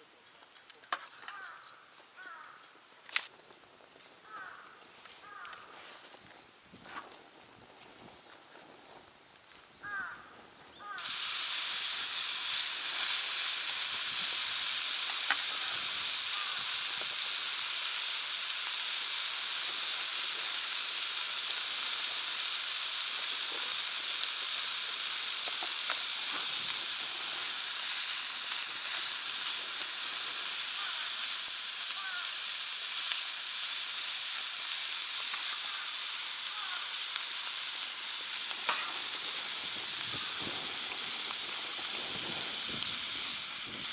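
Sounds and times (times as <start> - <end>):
meat sizzling on a grill pan: 9.8 - 43.9.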